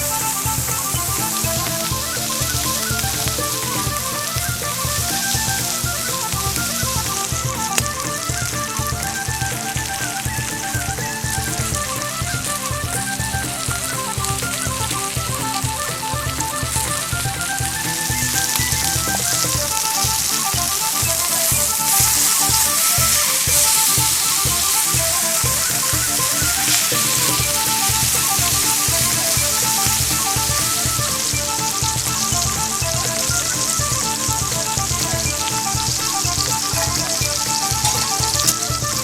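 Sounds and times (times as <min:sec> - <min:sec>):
background music with a beat: 0:00.0 - 0:39.0
steak sizzling in a frying pan: 0:19.8 - 0:32.7, 0:37.2 - 0:38.5.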